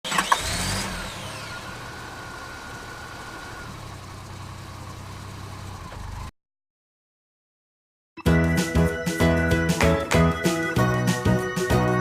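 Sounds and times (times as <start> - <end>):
truck engine idling: 1.2 - 6.3.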